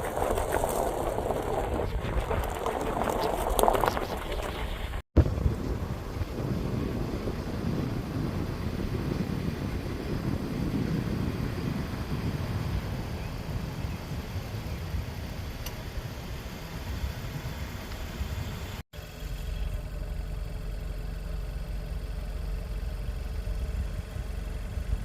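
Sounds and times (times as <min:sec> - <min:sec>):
road noise: 0:00.0 - 0:25.0
car engine running: 0:17.8 - 0:25.0.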